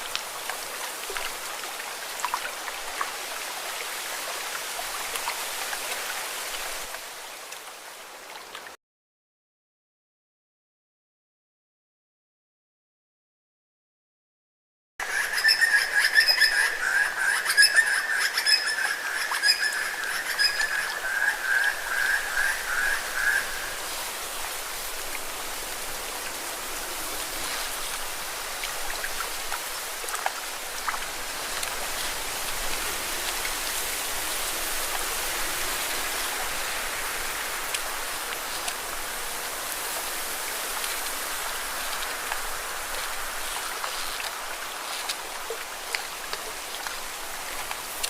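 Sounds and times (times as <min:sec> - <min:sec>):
water splashing against rocks: 0:23.8 - 0:48.0.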